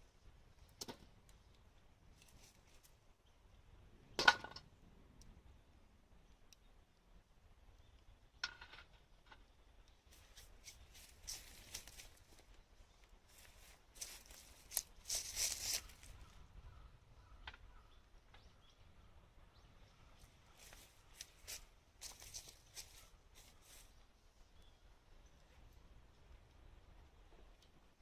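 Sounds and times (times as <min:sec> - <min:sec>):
wood fire crackling: 0:09.8 - 0:16.3.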